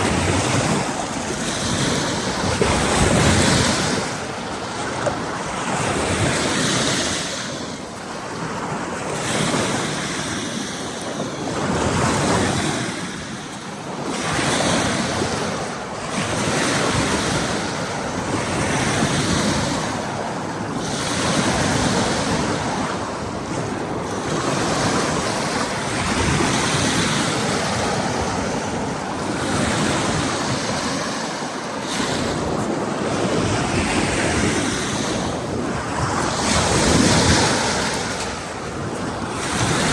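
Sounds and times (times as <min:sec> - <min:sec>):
surf breaking on a beach: 0:00.0 - 0:39.9
wind buffeting microphone: 0:00.0 - 0:39.9.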